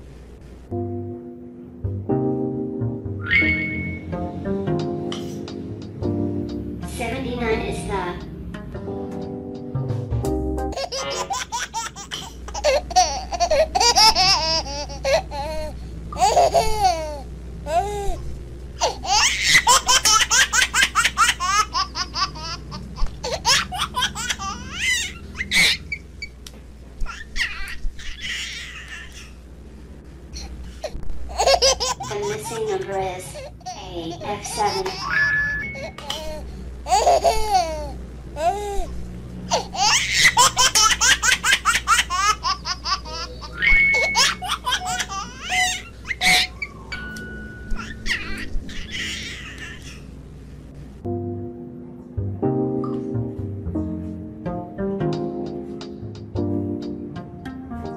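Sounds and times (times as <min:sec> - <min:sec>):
short beeping tones: 0:03.2 - 0:04.2
child laughing: 0:10.8 - 0:18.1, 0:18.8 - 0:26.0, 0:27.0 - 0:29.3, 0:31.3 - 0:38.9, 0:39.5 - 0:46.7, 0:47.7 - 0:50.1.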